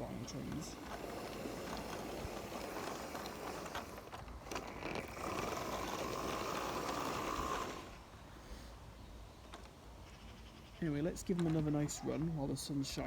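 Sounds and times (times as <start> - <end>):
toy train motor whirring: 0.0 - 8.0
small clicks: 0.5 - 7.7.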